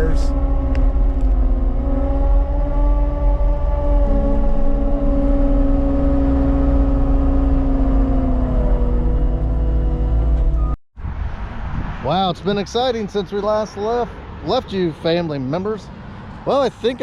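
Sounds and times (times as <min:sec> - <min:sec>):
diesel engine of earthmoving equipment: 0:00.0 - 0:11.7.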